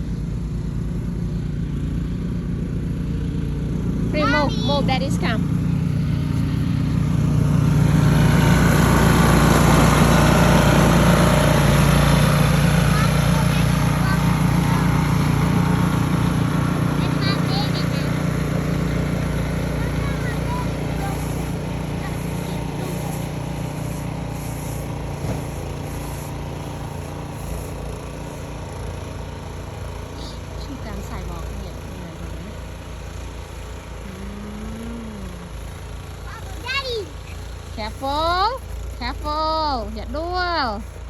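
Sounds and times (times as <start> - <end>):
small engine running: 0.0 - 41.0.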